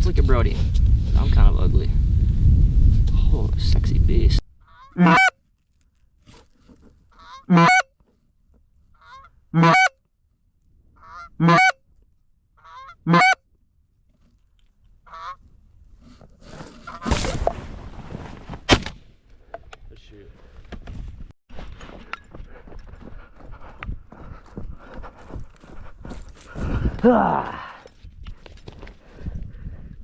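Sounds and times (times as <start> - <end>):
goose honking: 4.7 - 5.3, 7.2 - 7.9, 9.0 - 9.9, 11.0 - 11.8, 12.6 - 13.4
rustling: 16.0 - 18.9.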